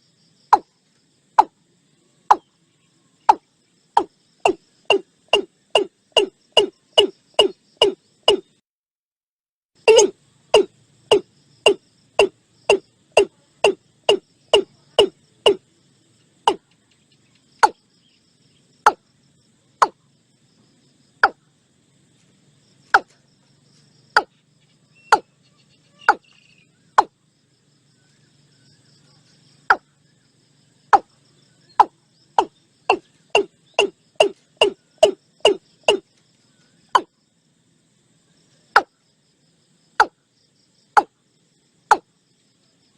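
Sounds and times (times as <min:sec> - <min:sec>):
high insect trill: 0:00.0 - 0:08.6, 0:09.8 - 0:42.9
watercock calling: 0:04.0 - 0:08.4, 0:09.9 - 0:15.6, 0:31.8 - 0:36.0.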